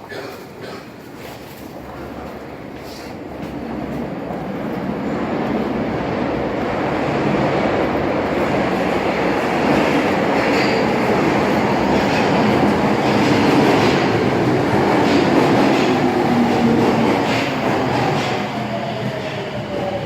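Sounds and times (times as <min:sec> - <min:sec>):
subway train wheels rumbling on rails: 0:00.0 - 0:20.0.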